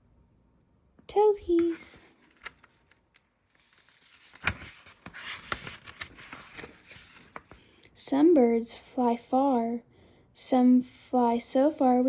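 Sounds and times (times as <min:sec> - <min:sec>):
book pages rustling: 0:01.5 - 0:07.8.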